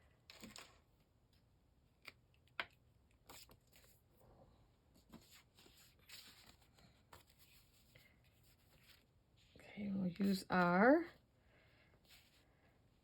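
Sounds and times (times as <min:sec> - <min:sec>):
paper rustling: 0:05.0 - 0:09.1.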